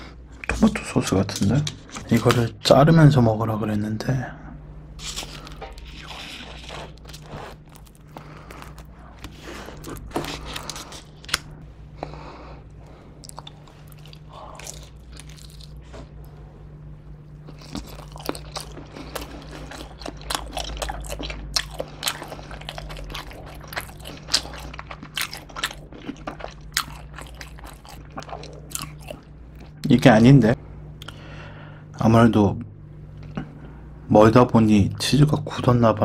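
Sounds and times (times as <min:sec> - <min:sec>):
biting and chewing pizza: 0:05.0 - 0:16.4, 0:17.3 - 0:30.0.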